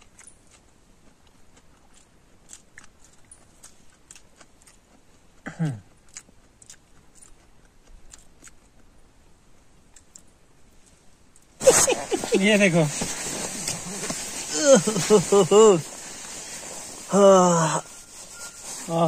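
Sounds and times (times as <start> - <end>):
crunchy chewing: 0.0 - 9.0, 9.8 - 11.0, 11.6 - 19.0
person's low falling vocal sound: 13.3 - 18.0.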